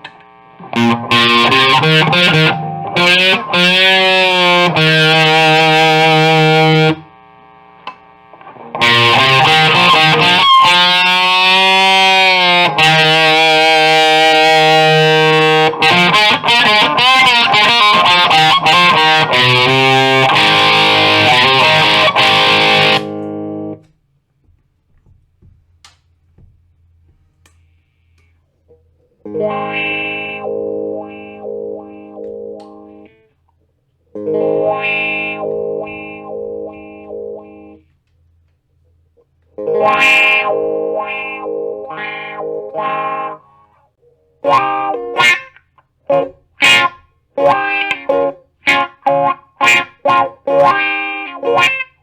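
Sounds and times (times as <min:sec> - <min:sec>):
distorted electric guitar: 0:00.0 - 0:23.9, 0:29.2 - 0:33.4, 0:34.2 - 0:37.9, 0:39.6 - 0:52.0
faint amp hum: 0:00.0 - 0:52.0.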